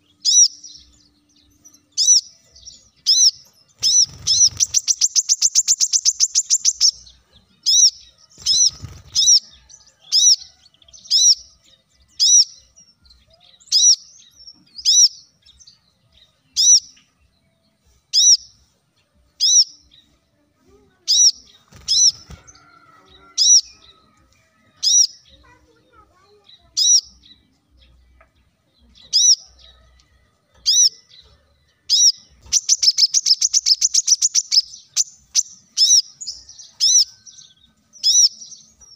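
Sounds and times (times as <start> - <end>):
bird sharp high chirps: 0.0 - 17.2, 18.1 - 18.6, 19.4 - 20.1, 21.1 - 24.0, 24.8 - 25.5, 26.5 - 27.5, 28.8 - 29.8, 30.6 - 38.9
bird fast trill: 2.0 - 10.4, 31.9 - 37.4.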